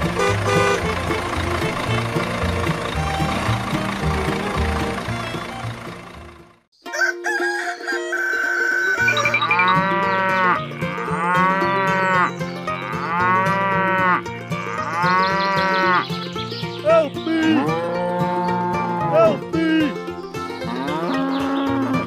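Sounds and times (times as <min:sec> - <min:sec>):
cattle mooing: 0:09.0 - 0:16.0, 0:17.3 - 0:19.4, 0:20.6 - 0:22.0.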